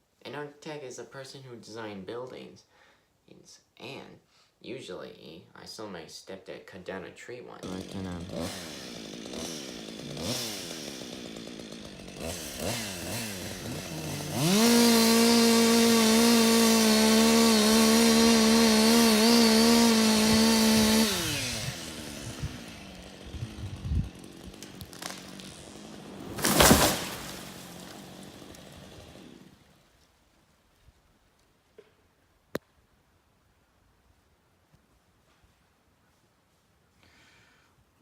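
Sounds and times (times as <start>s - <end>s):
chainsaw cutting: 7.5s - 30.1s
loud crash: 26.3s - 27.6s.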